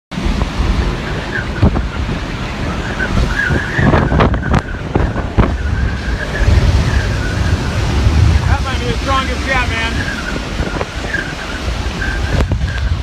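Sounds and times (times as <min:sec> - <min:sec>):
hurricane wind on microphone: 0:00.1 - 0:13.0
wavering high whistle: 0:02.6 - 0:08.0, 0:09.7 - 0:12.9.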